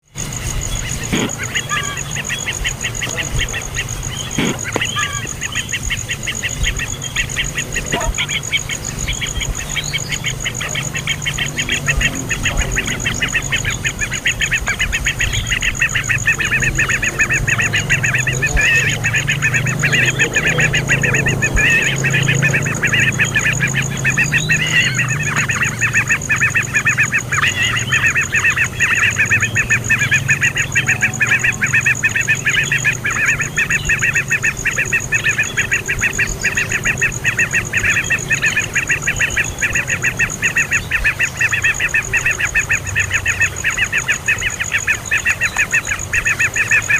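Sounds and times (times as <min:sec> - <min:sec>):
baby bird chirping: 0:00.3 - 0:46.9.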